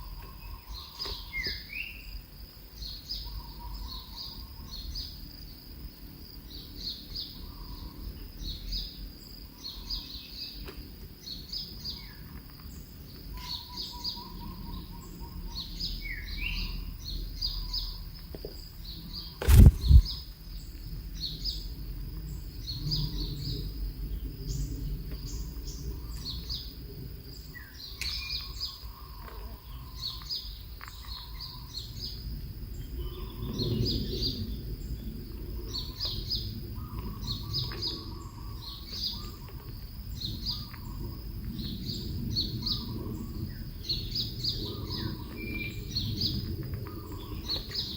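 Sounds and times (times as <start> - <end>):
loud thump: 19.4 - 20.1
birds chirping: 19.4 - 20.2.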